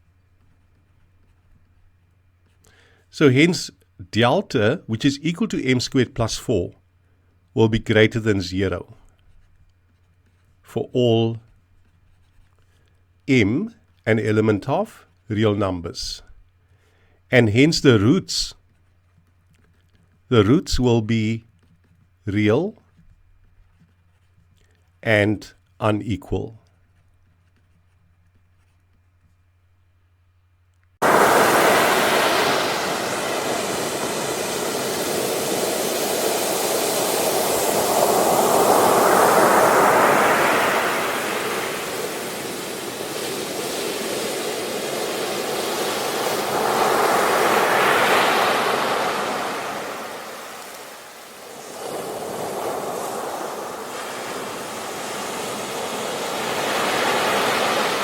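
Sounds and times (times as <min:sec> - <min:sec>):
ocean waves rushing: 0:31.0 - 0:58.0.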